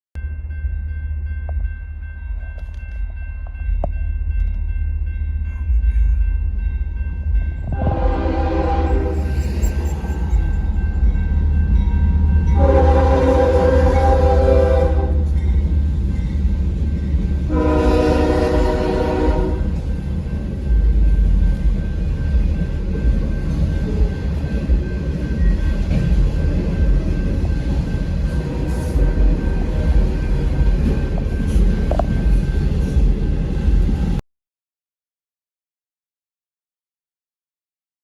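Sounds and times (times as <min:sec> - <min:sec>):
steady low rumble: 0:00.2 - 0:14.2, 0:19.3 - 0:34.2
multi-note air horn blasts: 0:07.7 - 0:09.3, 0:12.6 - 0:15.3, 0:17.5 - 0:19.7.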